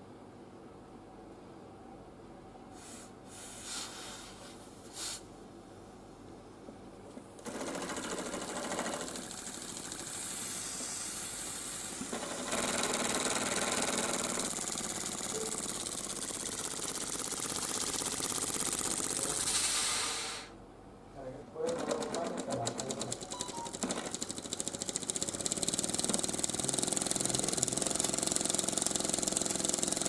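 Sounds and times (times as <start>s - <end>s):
compressed-air engine clattering: 7.5s - 19.5s, 23.9s - 30.0s.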